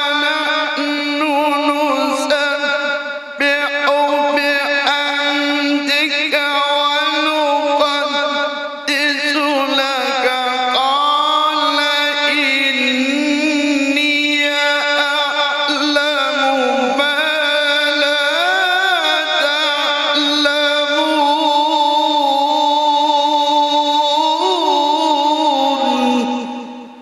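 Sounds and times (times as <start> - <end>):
man reciting in melodic chant: 0.0 - 27.0.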